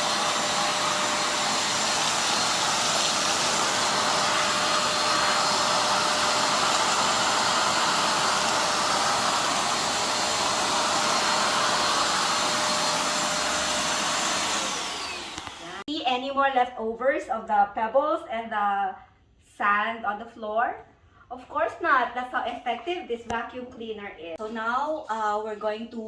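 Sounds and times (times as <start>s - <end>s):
vacuum cleaner running: 0.0s - 15.9s.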